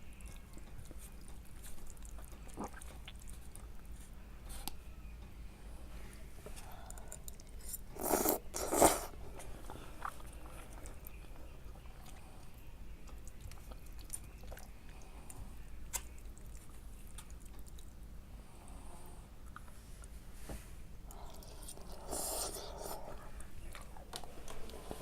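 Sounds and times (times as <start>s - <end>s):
person chewing food: 0.0s - 4.8s, 6.6s - 18.0s.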